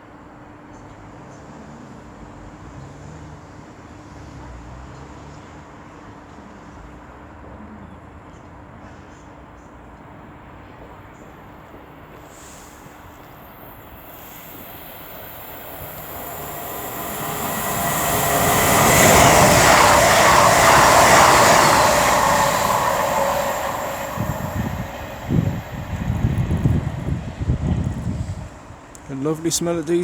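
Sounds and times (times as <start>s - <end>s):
train passing at speed: 8.9s - 30.0s.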